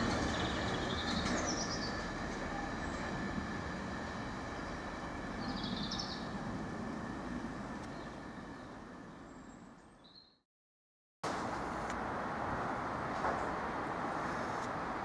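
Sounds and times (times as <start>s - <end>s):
freight train passing: 0.0s - 10.0s, 11.2s - 15.0s
high warbling chirp: 4.5s - 6.4s.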